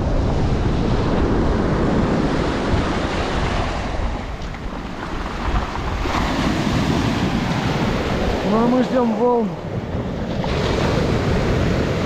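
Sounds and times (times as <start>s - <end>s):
sea waves breaking on shore: 0.0s - 12.0s
wind buffeting microphone: 0.0s - 12.0s.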